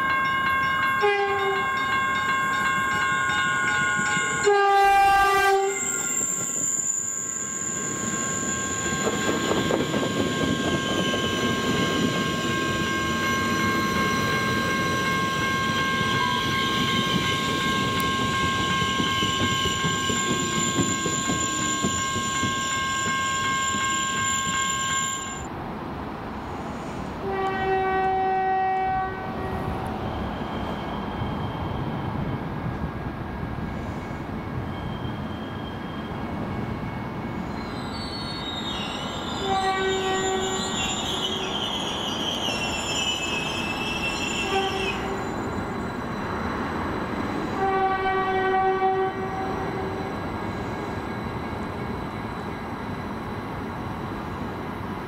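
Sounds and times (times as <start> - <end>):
train horn blast: 0.0 - 3.1, 4.4 - 6.0, 9.0 - 20.2, 27.2 - 29.7, 39.4 - 40.7, 44.4 - 45.3, 47.6 - 50.2
crossing bells ringing: 0.0 - 4.9, 5.7 - 25.5, 38.1 - 47.6
train rumble and wheel clatter: 0.0 - 55.0.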